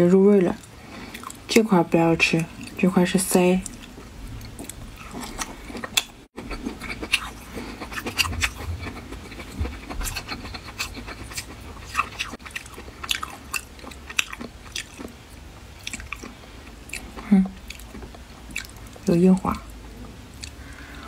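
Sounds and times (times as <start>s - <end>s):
wet chewing mouth smacks: 3.6s - 15.1s.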